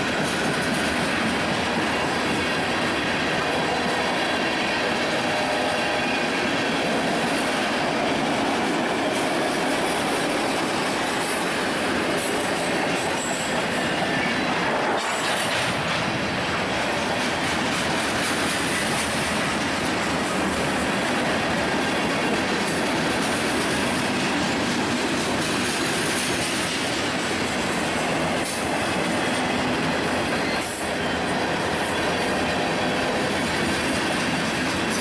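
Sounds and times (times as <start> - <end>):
train wheels on rails: 0.0 - 35.0
faint high wheel squeal: 12.2 - 15.2, 28.2 - 35.0.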